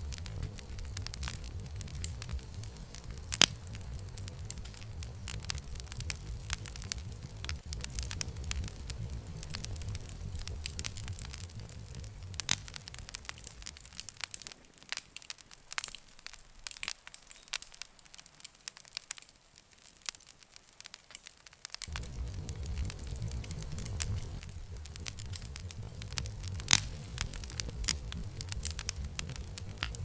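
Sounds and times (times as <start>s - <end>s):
low rumble: 0.0s - 14.4s, 21.9s - 30.0s
campfire crackling and popping: 0.0s - 30.0s.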